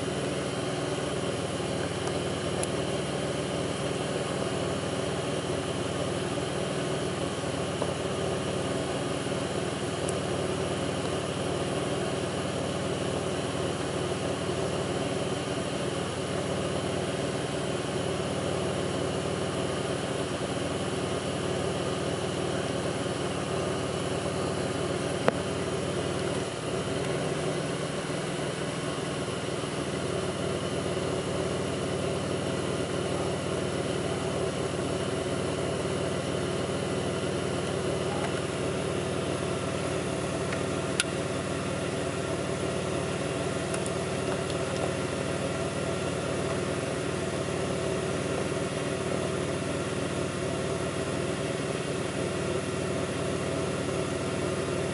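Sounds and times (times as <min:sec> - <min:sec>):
car engine idling: 0:00.0 - 0:54.9
sharp click: 0:40.5 - 0:41.2.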